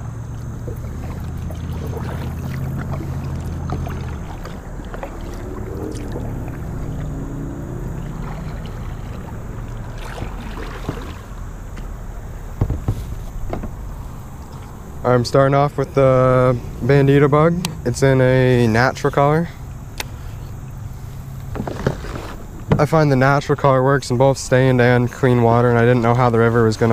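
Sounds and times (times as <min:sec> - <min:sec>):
water splashes: 0:00.0 - 0:12.6
paddle dipping through water: 0:00.0 - 0:15.0, 0:20.2 - 0:22.6
steady low hum: 0:00.0 - 0:26.9
paddle knocks: 0:08.0 - 0:11.9, 0:12.5 - 0:13.9, 0:21.5 - 0:23.0
strong thump: 0:12.6 - 0:13.8.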